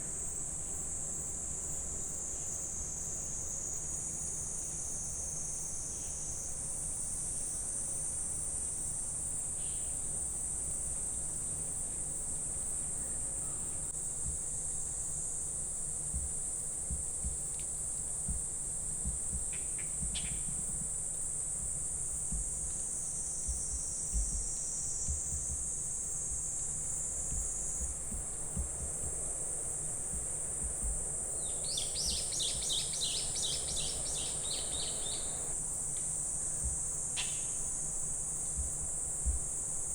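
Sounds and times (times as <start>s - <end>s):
insect chorus: 0.0s - 39.9s
rapid pulsed chirps: 27.2s - 35.5s
bird chirps: 31.4s - 35.5s.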